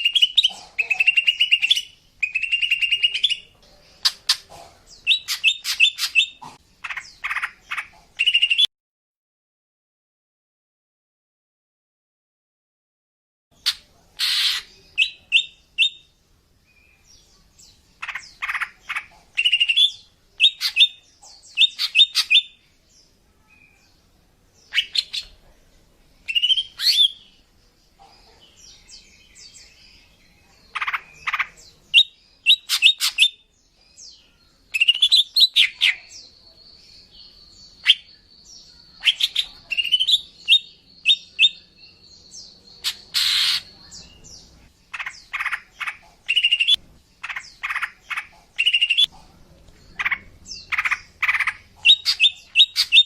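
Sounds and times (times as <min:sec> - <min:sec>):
bird chirping and trilling: 0:00.0 - 0:08.7, 0:13.6 - 0:16.1, 0:16.7 - 0:24.0, 0:24.6 - 0:25.4, 0:26.2 - 0:49.2, 0:49.8 - 0:53.0.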